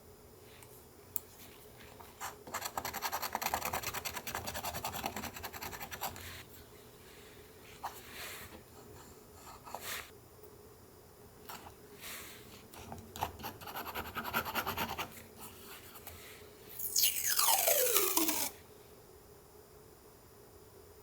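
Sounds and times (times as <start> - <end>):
scratching on paper: 2.0 - 6.5, 13.2 - 16.0.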